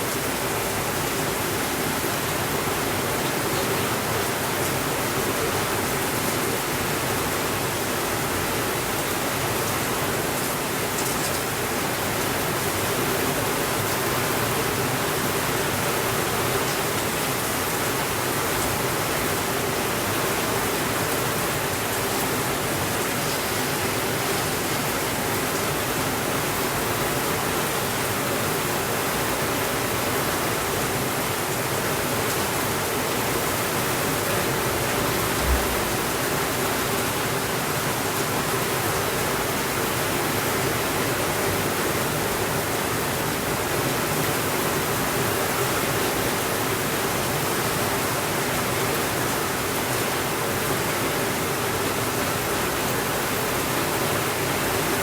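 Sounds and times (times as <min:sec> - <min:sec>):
heavy rain on a window: 0:00.0 - 0:55.0
low thump: 0:35.3 - 0:36.2.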